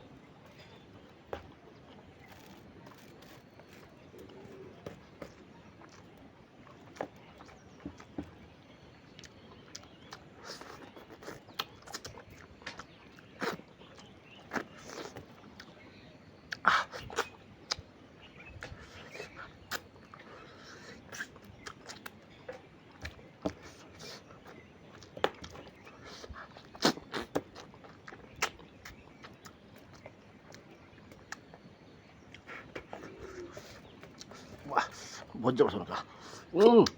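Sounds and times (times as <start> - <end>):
mouth smacks while chewing: 9.2 - 15.8, 16.5 - 31.7, 32.3 - 35.3.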